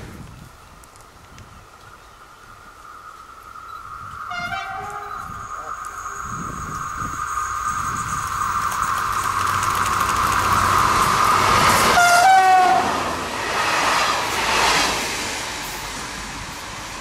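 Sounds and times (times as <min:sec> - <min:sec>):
diesel railcar passing: 0:01.6 - 0:17.0
two-tone horn blast: 0:04.3 - 0:05.3, 0:11.9 - 0:13.0
wheels clattering over rail joints: 0:07.0 - 0:12.7.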